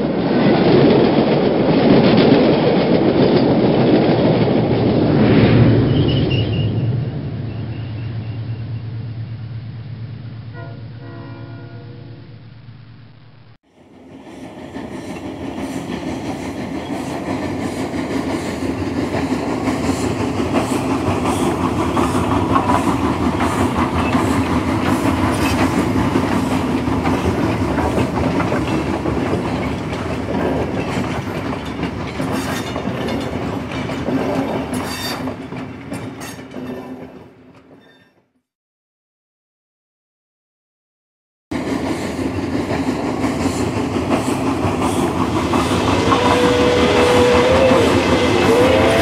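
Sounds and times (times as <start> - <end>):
train wheels clattering over rails: 0.0 - 5.2, 13.8 - 37.8, 41.5 - 49.0.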